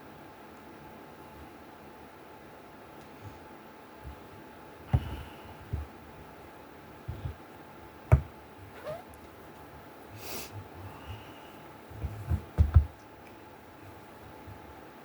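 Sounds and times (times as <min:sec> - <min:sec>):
dull knocks: 0:08.1 - 0:08.4, 0:11.9 - 0:13.0.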